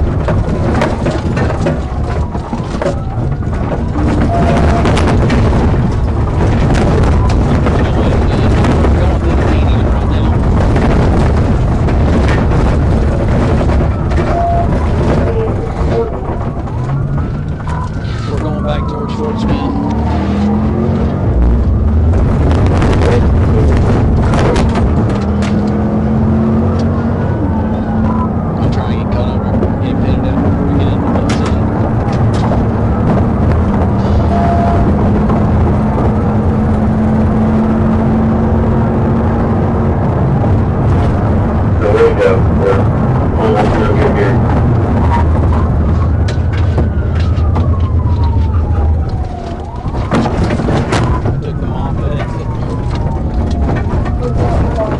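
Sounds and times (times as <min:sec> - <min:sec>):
clicks and knocks: 0:00.0 - 0:18.0
car engine drone: 0:00.0 - 0:54.9
road and wind noise: 0:00.0 - 0:54.9
police siren wailing: 0:00.1 - 0:54.9.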